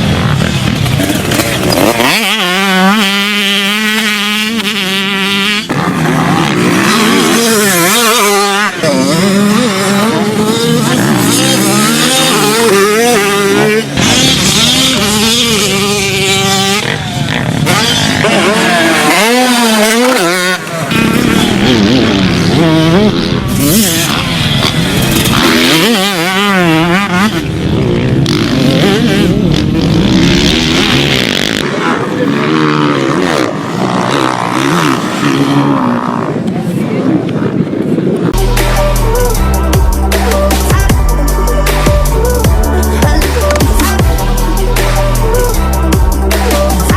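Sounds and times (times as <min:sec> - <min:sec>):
motocross bike engine revving: 0:00.0 - 0:46.9.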